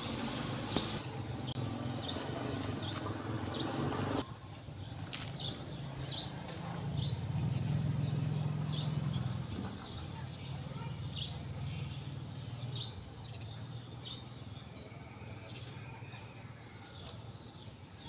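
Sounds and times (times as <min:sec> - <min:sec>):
small bird chirping: 0:00.0 - 0:03.8.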